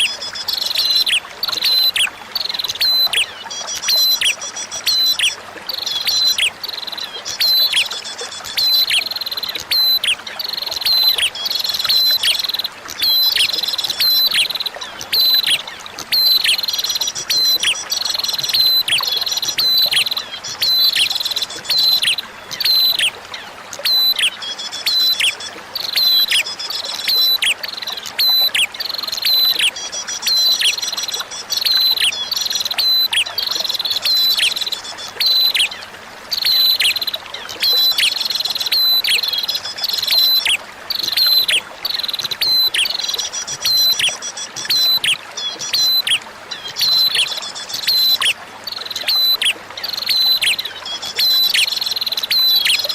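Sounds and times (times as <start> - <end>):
flowing water: 0.0 - 52.9.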